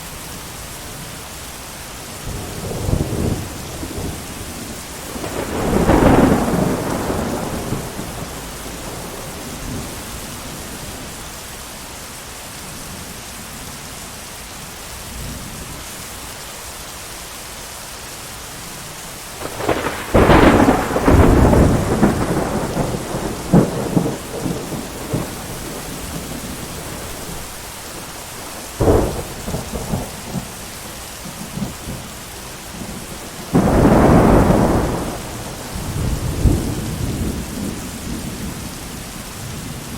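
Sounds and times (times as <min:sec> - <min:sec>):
heavy rain: 0:00.0 - 0:39.9
thunder: 0:02.3 - 0:10.6, 0:19.4 - 0:27.5, 0:28.6 - 0:32.0, 0:32.8 - 0:38.7.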